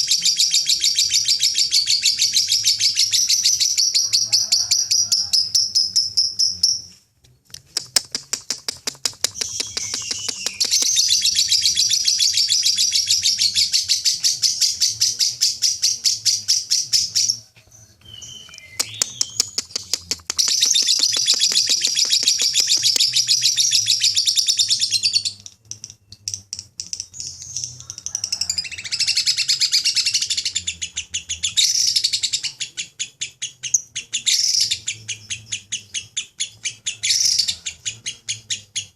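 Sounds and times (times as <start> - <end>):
lovebird chattering chirps: 7.8 - 17.4, 18.3 - 28.0.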